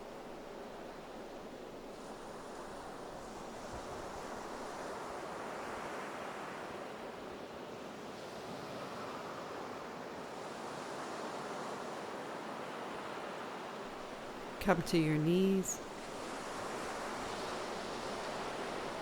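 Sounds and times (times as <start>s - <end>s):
ocean surf on a beach: 0.0s - 13.7s.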